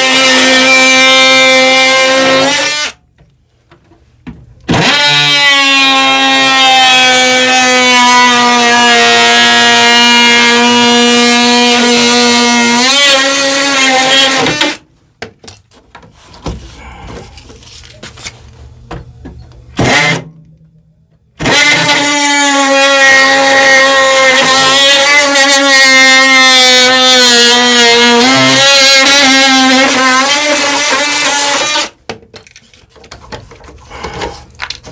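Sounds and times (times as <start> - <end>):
electric power saw cutting wood: 0.0 - 3.0, 4.7 - 14.8, 19.8 - 20.3, 21.4 - 32.0.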